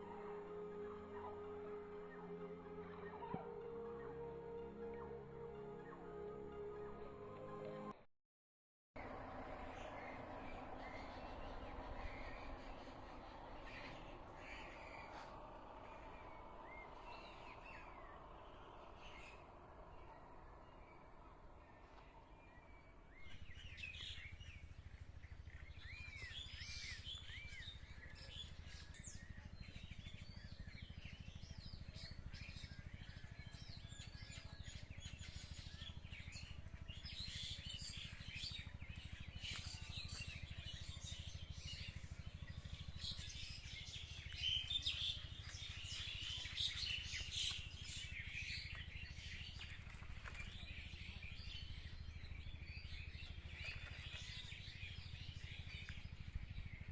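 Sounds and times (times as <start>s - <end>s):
songbirds chirping: 0.0s - 8.0s, 9.0s - 56.9s
low steady rumble: 9.0s - 56.9s.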